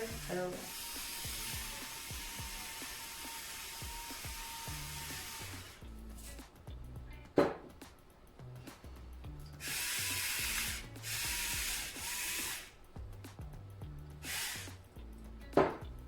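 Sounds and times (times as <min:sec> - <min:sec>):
background music with bass: 0:00.0 - 0:03.0, 0:03.7 - 0:16.0
pepper mill grinding: 0:00.0 - 0:06.6, 0:09.4 - 0:13.0, 0:14.0 - 0:15.5.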